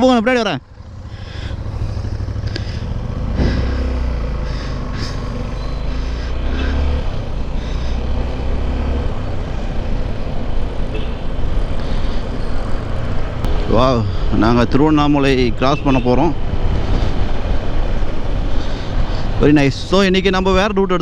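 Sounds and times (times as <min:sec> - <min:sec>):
motorcycle engine running: 0:00.6 - 0:14.1.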